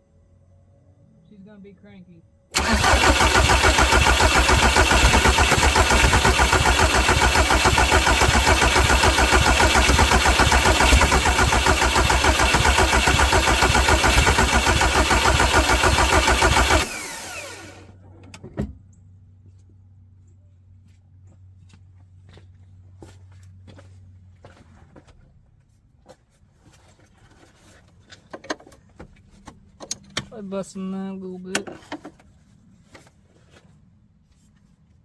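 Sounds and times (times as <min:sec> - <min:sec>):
diesel engine starter cranking: 0:02.5 - 0:17.9.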